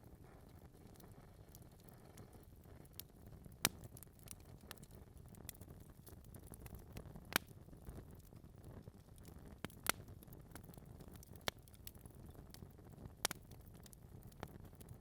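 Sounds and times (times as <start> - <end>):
fire low rumble: 0.0 - 15.0
logs crackling and popping: 0.0 - 15.0.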